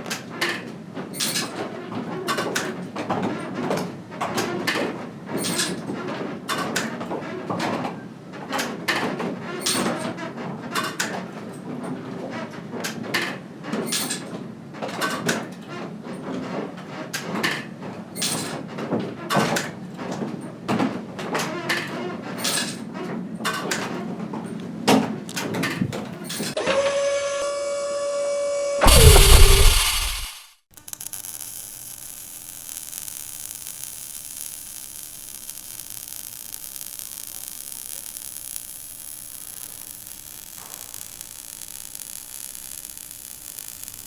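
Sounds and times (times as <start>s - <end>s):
factory machinery din: 28.8s - 30.5s.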